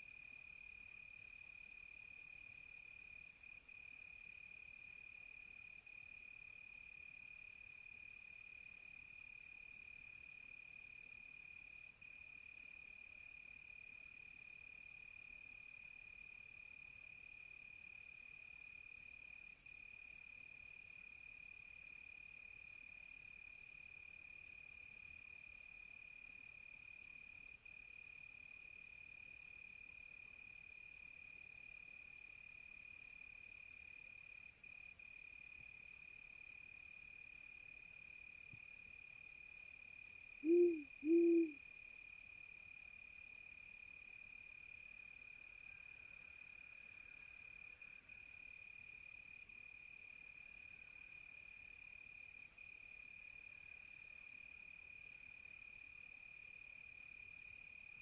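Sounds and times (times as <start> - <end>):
insects: 0.0 - 58.0
owl hooting: 40.4 - 41.6
crickets trilling: 40.5 - 41.6.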